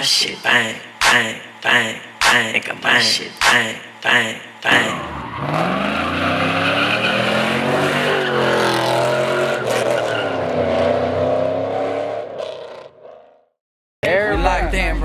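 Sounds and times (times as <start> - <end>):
car engine at high revs: 4.7 - 13.0.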